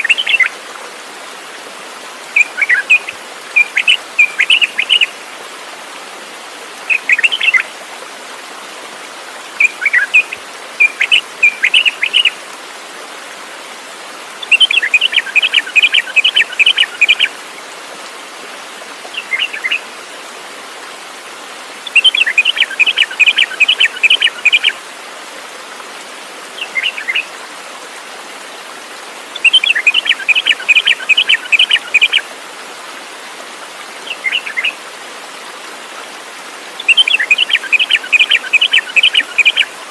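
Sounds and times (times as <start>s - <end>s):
songbird singing: 0.0s - 0.5s, 2.3s - 5.2s, 6.9s - 7.7s, 9.6s - 12.4s, 14.4s - 17.3s, 19.1s - 19.8s, 21.8s - 24.8s, 26.6s - 27.3s, 29.3s - 32.2s, 34.0s - 34.8s, 36.8s - 39.7s
background hiss: 0.0s - 39.9s.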